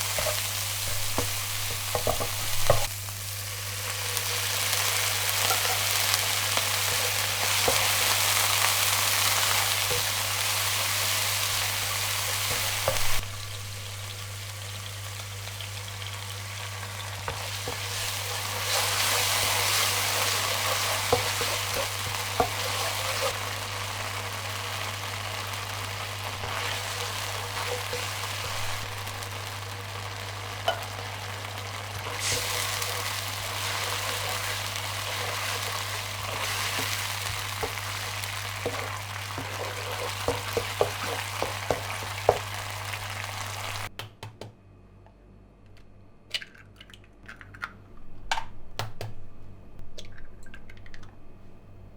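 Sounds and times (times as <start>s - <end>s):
food sizzling in oil: 0.0s - 43.9s
utensil tapping and scraping: 0.2s - 2.9s, 38.6s - 42.5s.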